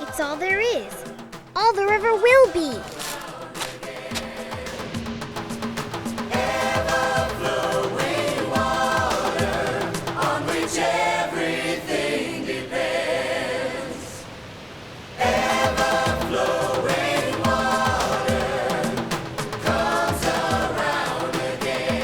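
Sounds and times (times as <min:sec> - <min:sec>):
choir singing with music: 0:00.0 - 0:22.0.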